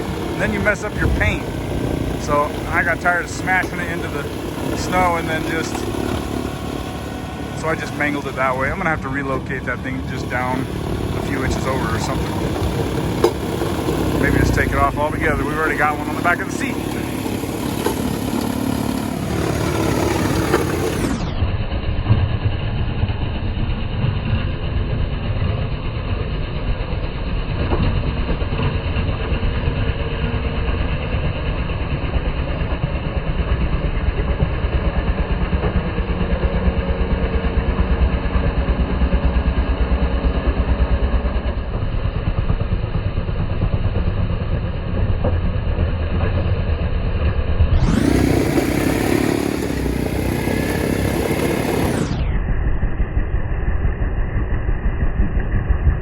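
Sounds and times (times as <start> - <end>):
tractor diesel engine rumbling: 0.0 - 21.3, 47.8 - 52.3.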